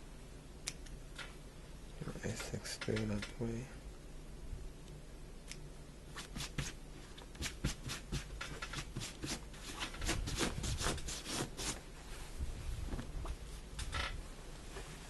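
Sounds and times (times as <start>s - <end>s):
fabric rustling: 11.4s - 13.7s.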